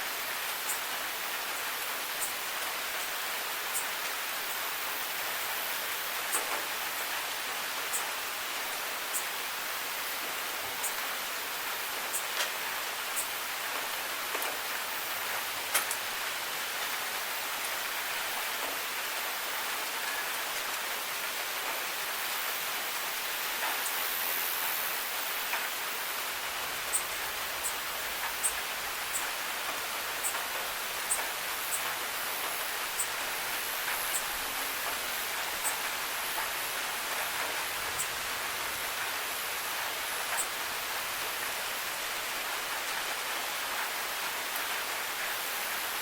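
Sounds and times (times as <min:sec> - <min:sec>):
rain falling: 0:00.0 - 0:46.0.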